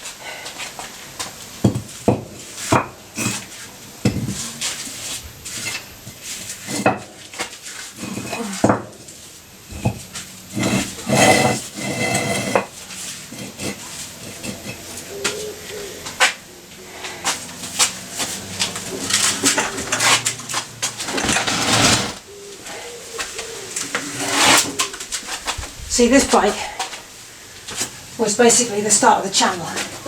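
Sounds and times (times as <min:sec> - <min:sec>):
metal tools clanking: 0:19.0 - 0:22.2.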